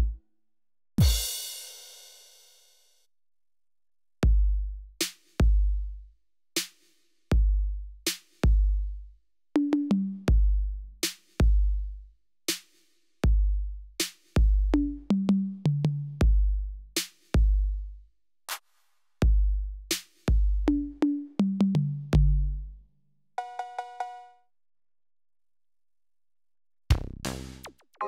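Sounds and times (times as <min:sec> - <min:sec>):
electronic bass drum: 0:14.4 - 0:15.1, 0:16.2 - 0:16.5, 0:17.4 - 0:17.8, 0:19.2 - 0:19.6, 0:20.3 - 0:21.0, 0:21.7 - 0:22.5, 0:26.9 - 0:27.8.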